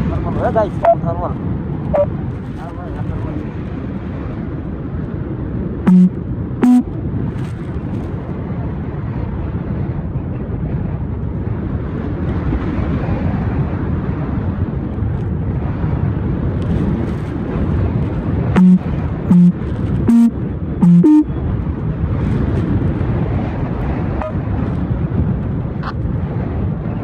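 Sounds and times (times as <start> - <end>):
short loud tones: 5.9 - 6.8, 18.6 - 21.3.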